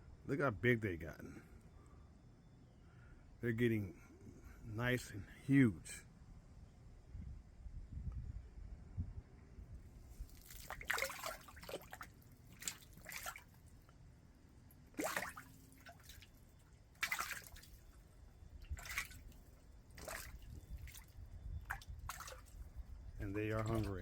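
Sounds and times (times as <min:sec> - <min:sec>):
fish splashing at surface: 0:10.2 - 0:13.6, 0:15.0 - 0:18.0, 0:18.7 - 0:22.6.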